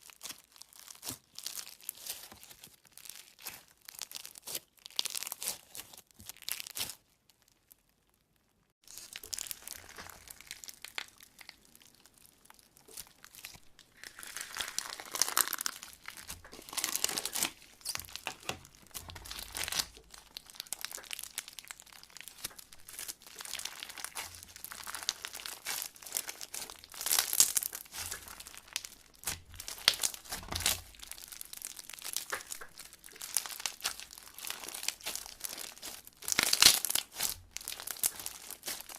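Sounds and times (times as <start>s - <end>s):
slime squishing and crackling: 0.0s - 38.9s.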